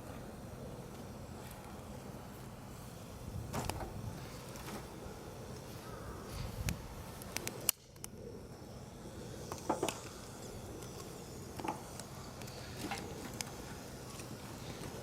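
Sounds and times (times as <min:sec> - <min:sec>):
campfire crackling and popping: 0:06.6 - 0:08.2.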